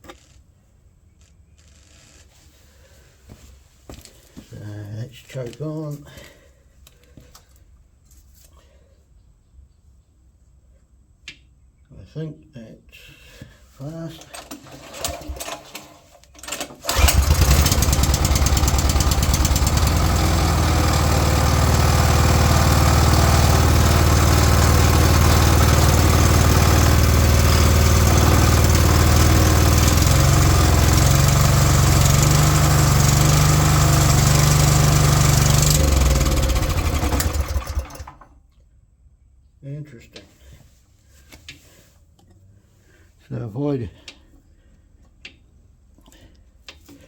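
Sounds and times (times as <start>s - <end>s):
small petrol engine running: 14.3s - 38.2s.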